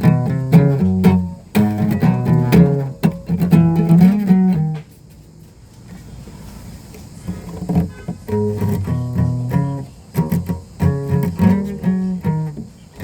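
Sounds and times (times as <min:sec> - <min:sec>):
guitar picked chords: 0:00.0 - 0:04.8, 0:08.3 - 0:13.0.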